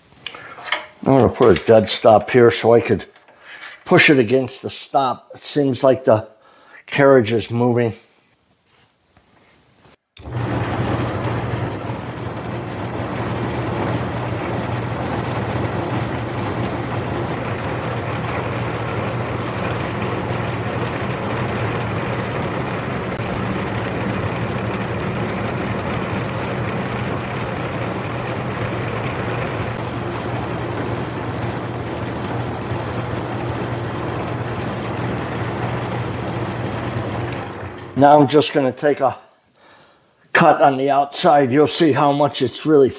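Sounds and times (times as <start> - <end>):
metal lathe motor humming: 10.2 - 38.2.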